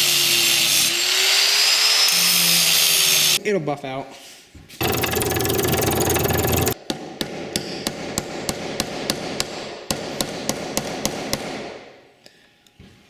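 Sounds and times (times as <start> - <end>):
power tool running: 4.8 - 6.8.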